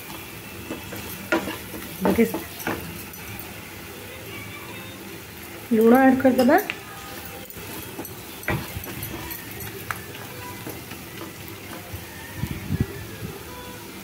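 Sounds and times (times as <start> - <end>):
garlic sizzling in butter: 0.0 - 13.2
spatula knocking pan: 0.1 - 3.1, 7.5 - 11.9
wooden spatula scraping pan: 0.6 - 3.0, 7.1 - 12.1.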